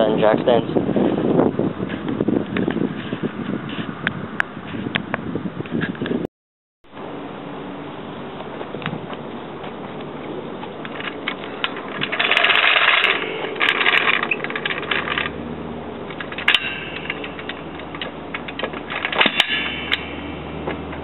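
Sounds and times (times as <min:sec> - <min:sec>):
metal scraping: 0:10.8 - 0:21.0
metal car jack clinking: 0:10.9 - 0:15.4, 0:16.0 - 0:21.0.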